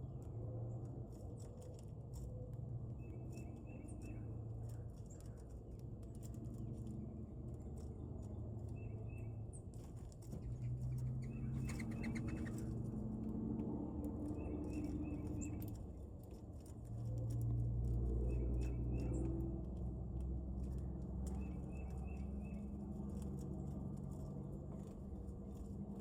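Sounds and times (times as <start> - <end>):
wings fluttering: 3.0 - 19.5
bird calls: 10.3 - 12.8, 14.2 - 15.7, 21.3 - 22.7.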